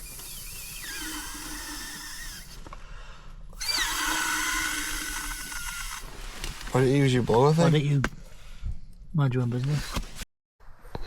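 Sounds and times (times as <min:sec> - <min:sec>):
electric air pump whirring: 0:00.0 - 0:02.7, 0:03.6 - 0:06.3.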